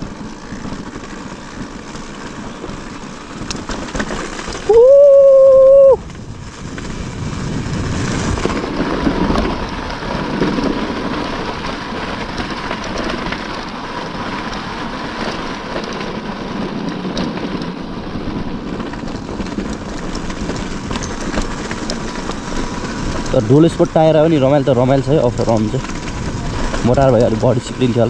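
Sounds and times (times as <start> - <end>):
motorcycle engine running: 0.0 - 28.0
wind and road noise on microphone: 0.0 - 28.0.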